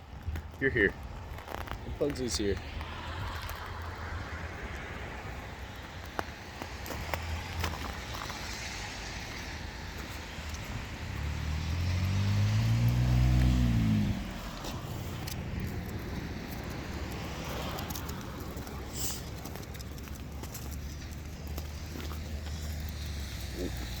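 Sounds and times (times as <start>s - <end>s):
street noise: 0.0s - 24.0s
car driving past: 6.3s - 24.0s.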